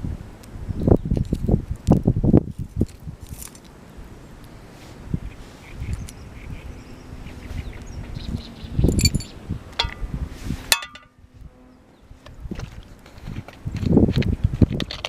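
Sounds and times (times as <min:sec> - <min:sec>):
metal cookware clinking: 0:09.8 - 0:10.0, 0:10.7 - 0:11.1.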